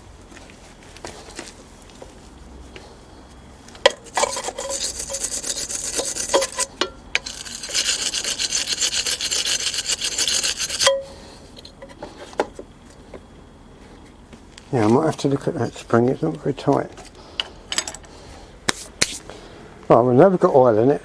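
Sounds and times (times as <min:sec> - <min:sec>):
spark plug being scraped: 0:03.9 - 0:10.9.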